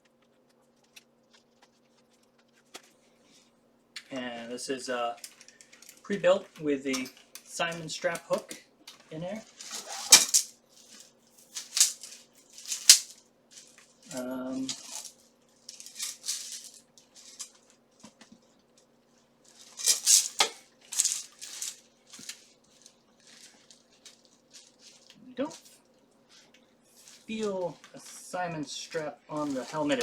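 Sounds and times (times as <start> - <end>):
metal armor plates clinking: 9.4 - 17.6, 19.6 - 23.0.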